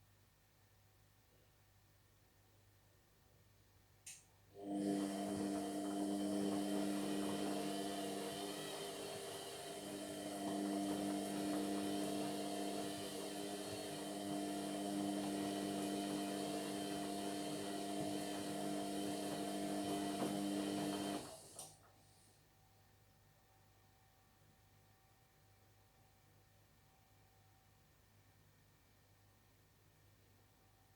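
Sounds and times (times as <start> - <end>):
washing machine motor hum: 4.6 - 21.7.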